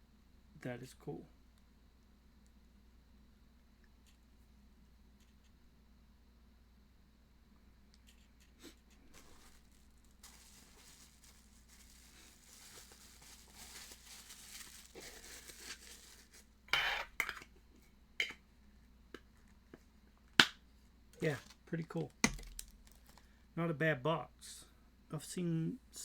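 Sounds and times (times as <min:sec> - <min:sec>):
packaging rustling: 0:09.0 - 0:16.6, 0:21.2 - 0:23.3.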